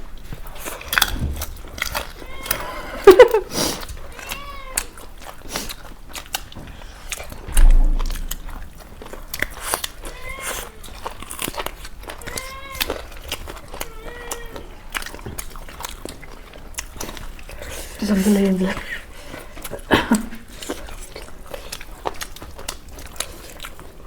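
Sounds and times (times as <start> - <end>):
eating clicks and crunches: 0.2 - 2.7, 11.3 - 17.9, 20.6 - 24.0
cat meowing: 4.1 - 5.0, 12.2 - 13.0, 13.8 - 14.8
loud low thump: 7.5 - 9.5.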